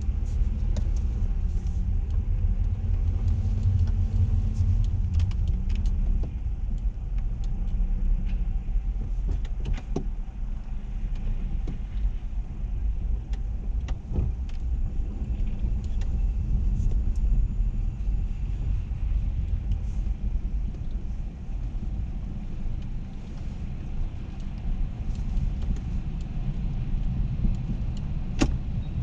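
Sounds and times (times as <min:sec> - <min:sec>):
car rumble from inside: 0:00.0 - 0:29.0
light clicks and taps: 0:00.2 - 0:12.2, 0:13.0 - 0:17.3, 0:20.6 - 0:28.6.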